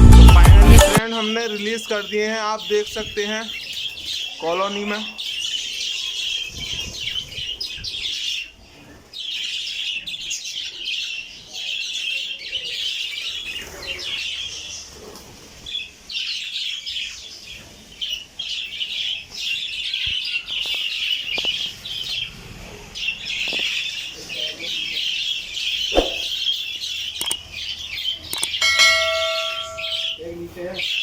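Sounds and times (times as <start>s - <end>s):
budgerigars chattering: 23.0s - 31.0s.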